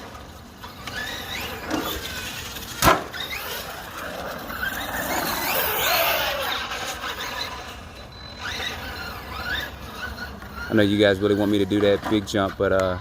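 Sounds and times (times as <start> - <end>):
electric motor whining: 0.0 - 11.7.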